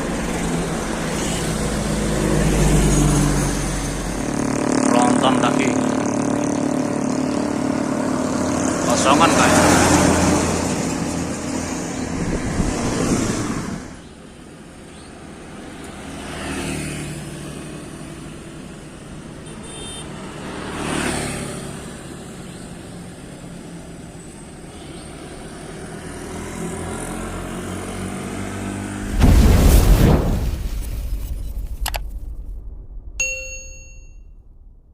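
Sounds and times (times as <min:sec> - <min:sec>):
heavy truck passing: 0:00.0 - 0:14.0
vehicles passing: 0:00.0 - 0:33.4.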